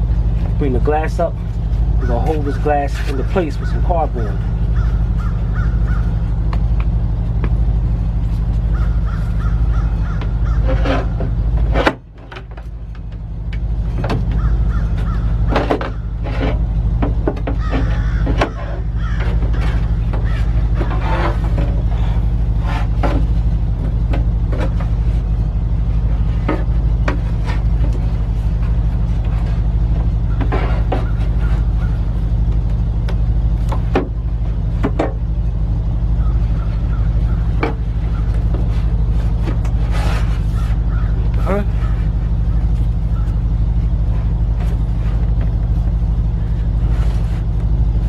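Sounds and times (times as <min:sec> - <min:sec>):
low hum: 0:00.0 - 0:48.0
bird calls: 0:01.9 - 0:07.8, 0:08.5 - 0:11.4, 0:14.2 - 0:23.0, 0:29.4 - 0:33.9, 0:35.8 - 0:44.6
taps and knocks: 0:15.5 - 0:21.7.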